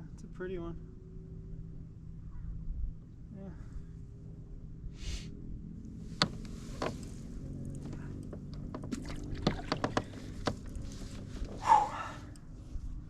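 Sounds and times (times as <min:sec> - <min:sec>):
low steady hum: 0:00.0 - 0:13.0
gear knocking and clicking: 0:06.2 - 0:11.6.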